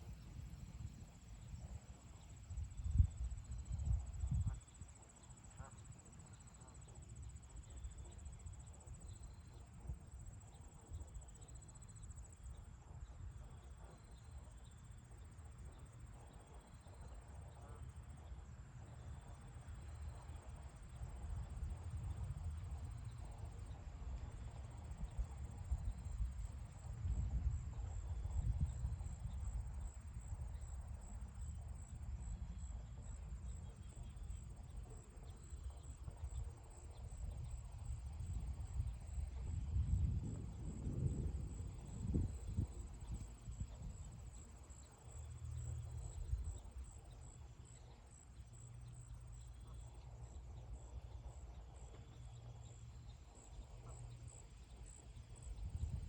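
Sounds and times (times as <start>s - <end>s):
low wind rumble: 20.8s - 47.2s, 55.2s - 56.0s.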